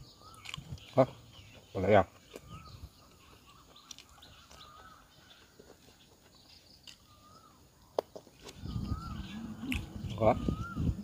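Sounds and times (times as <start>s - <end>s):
crunching bite: 0.2s - 1.1s, 3.2s - 5.0s, 6.7s - 10.8s
bird whistling: 8.6s - 11.0s.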